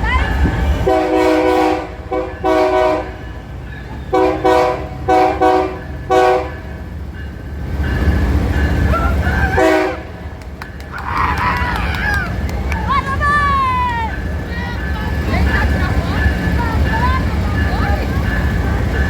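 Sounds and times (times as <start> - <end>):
train rumble: 0.0 - 19.0
locomotive air horn blasts: 0.7 - 3.2, 4.1 - 6.7, 9.5 - 10.2.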